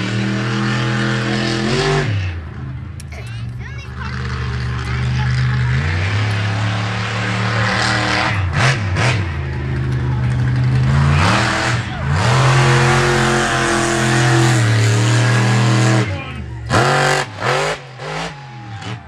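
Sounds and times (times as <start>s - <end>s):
monster truck engine revving: 0.0s - 19.0s.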